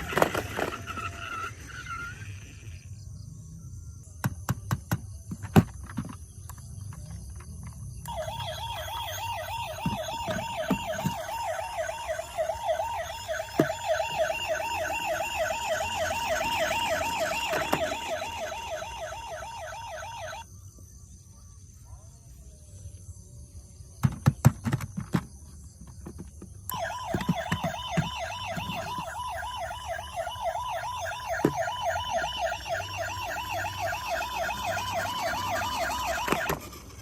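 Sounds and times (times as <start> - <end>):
toy siren wailing: 0.0 - 2.8, 8.0 - 20.4, 26.7 - 37.0.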